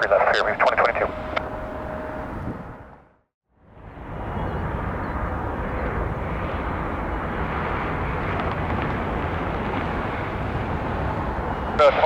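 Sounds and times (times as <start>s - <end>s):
jet engines rushing: 0.0s - 12.0s.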